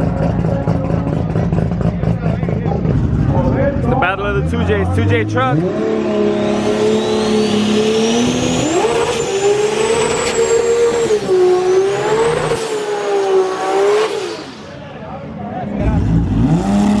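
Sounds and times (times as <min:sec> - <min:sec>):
drag race engine at full throttle: 0:00.0 - 0:17.0
high whine: 0:04.2 - 0:14.9.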